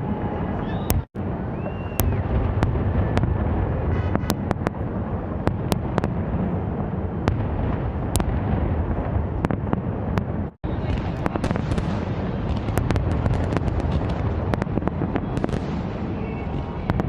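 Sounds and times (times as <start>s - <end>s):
firework whistle: 0.0s - 4.8s, 10.7s - 17.0s
fireworks crackling: 0.0s - 17.0s
low rumble of firework bursts: 0.0s - 17.0s.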